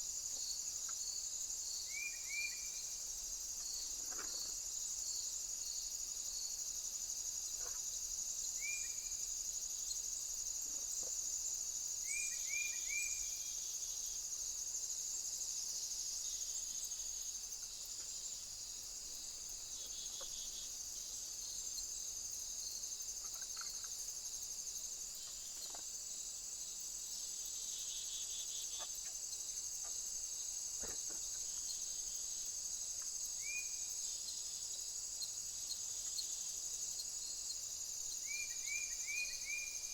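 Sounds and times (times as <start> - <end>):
crickets chirping: 0.0 - 39.9
rising insect chirps: 0.2 - 6.3, 11.6 - 39.9
faint ticks: 0.4 - 1.1, 3.6 - 4.6, 23.2 - 24.0, 29.8 - 30.0, 32.9 - 33.2.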